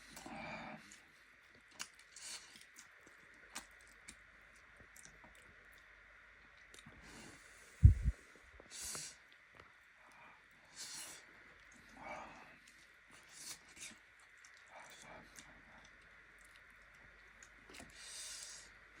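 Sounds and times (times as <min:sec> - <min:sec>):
wet chewing clicks and smacks: 0:00.1 - 0:07.0, 0:12.6 - 0:18.1
low thump: 0:07.8 - 0:08.2.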